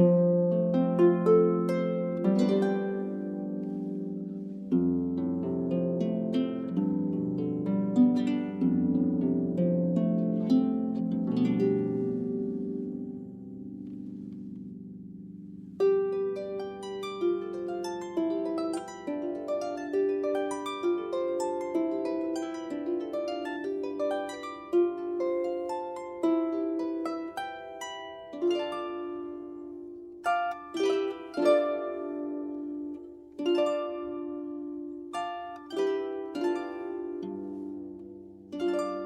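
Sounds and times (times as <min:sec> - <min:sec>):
harp playing: 0:00.0 - 0:39.0.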